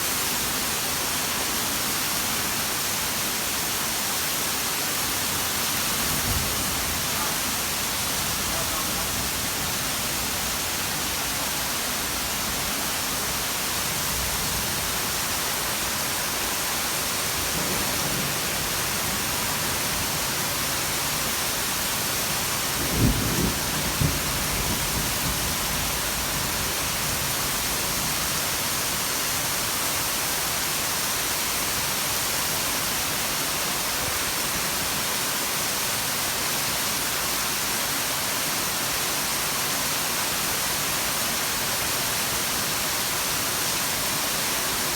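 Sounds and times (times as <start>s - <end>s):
heavy rain pouring: 0.0s - 44.9s
low rumble of thunder: 17.4s - 21.1s, 22.0s - 27.7s.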